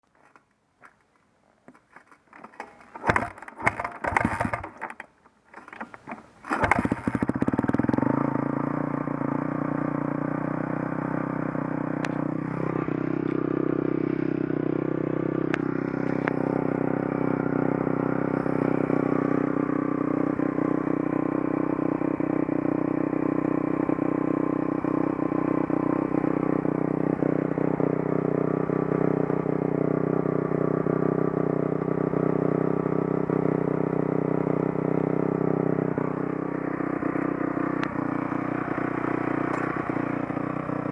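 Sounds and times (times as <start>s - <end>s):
dirt bike engine starting and idling: 1.6s - 40.9s.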